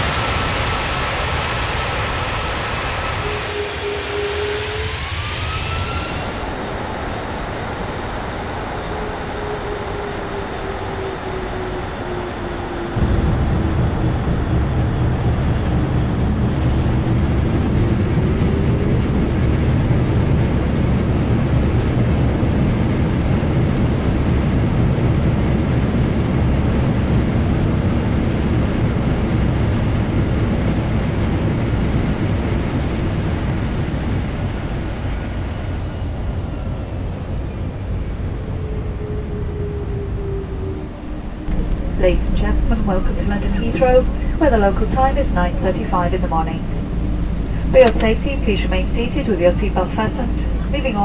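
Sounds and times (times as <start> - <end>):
jet engines reverse thrust: 0.0 - 51.0
wheels rumbling on runway: 0.0 - 51.0.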